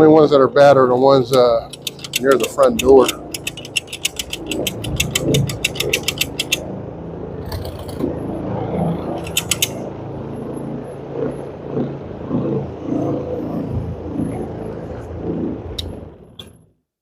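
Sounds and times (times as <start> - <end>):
low machine hum: 0.0 - 16.6
rapid mechanical clicking: 1.3 - 6.6, 9.2 - 9.9.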